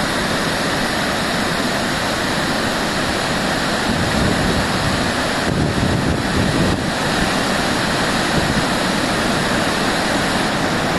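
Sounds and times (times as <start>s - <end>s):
waterfall rushing: 0.0s - 10.9s
wind buffeting microphone: 3.9s - 7.4s.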